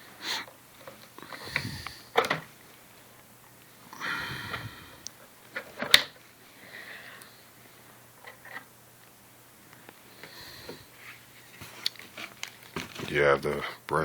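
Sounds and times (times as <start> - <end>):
plastic rustling: 10.9 - 13.8.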